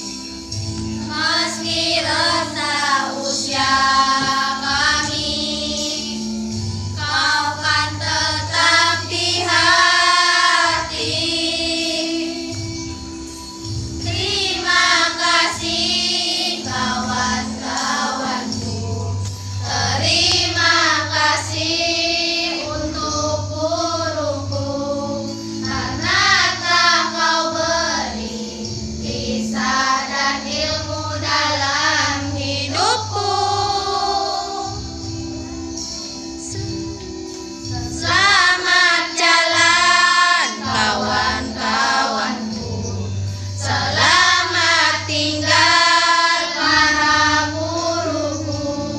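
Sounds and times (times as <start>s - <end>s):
children's choir singing: 0.0s - 48.9s
sustained accompaniment notes: 32.7s - 44.5s.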